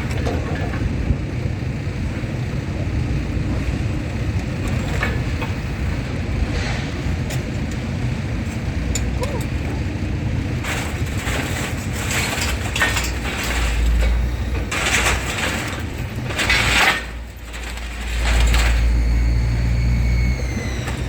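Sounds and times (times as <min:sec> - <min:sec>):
low engine rumble: 0:00.0 - 0:21.0
scrap metal scraping and crunching: 0:06.4 - 0:21.0.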